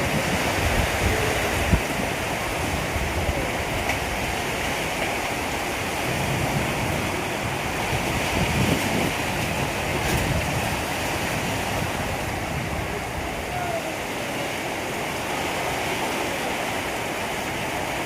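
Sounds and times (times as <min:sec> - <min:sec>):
pouring rain: 0:00.0 - 0:18.0
wind rushing: 0:05.4 - 0:13.8.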